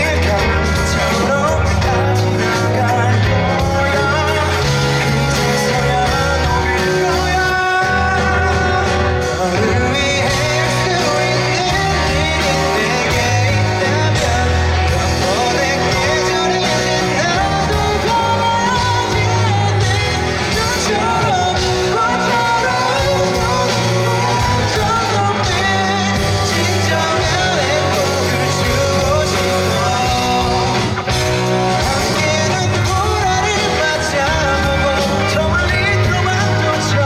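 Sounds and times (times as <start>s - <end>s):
man singing rock song: 0.0s - 37.0s
rock band with guitar and bass: 0.0s - 37.0s.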